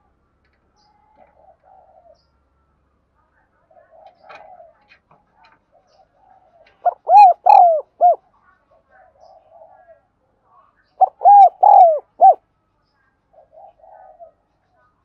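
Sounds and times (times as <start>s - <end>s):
dove cooing: 1.0s - 2.2s, 5.7s - 8.2s, 11.0s - 12.4s, 13.3s - 14.4s.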